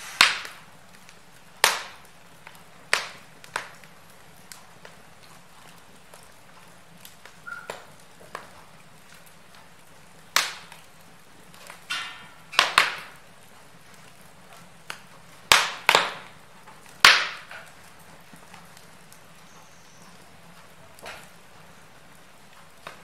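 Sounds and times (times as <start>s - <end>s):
faint steady hiss: 0.0s - 23.0s
wood fire crackling: 0.0s - 23.0s.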